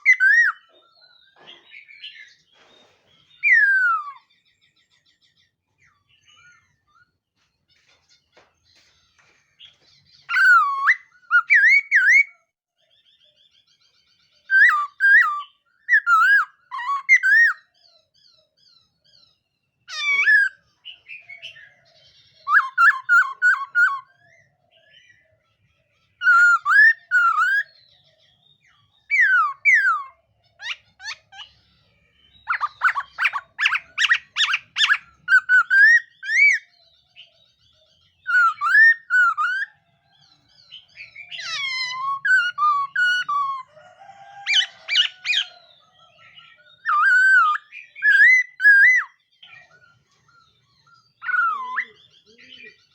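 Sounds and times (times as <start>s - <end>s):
bird singing whistled phrases: 0.0s - 0.7s, 3.4s - 4.3s, 10.2s - 12.4s, 14.5s - 17.7s, 22.4s - 25.2s, 26.2s - 27.8s, 32.2s - 37.4s, 38.1s - 39.8s, 40.6s - 45.6s, 46.4s - 49.2s, 51.2s - 52.9s.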